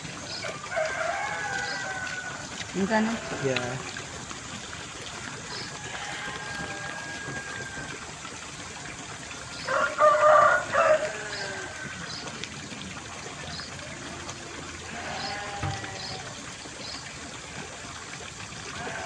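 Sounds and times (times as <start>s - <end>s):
water trickling: 0.0s - 19.0s
rooster crowing: 0.6s - 2.5s, 5.8s - 7.9s, 9.7s - 11.8s.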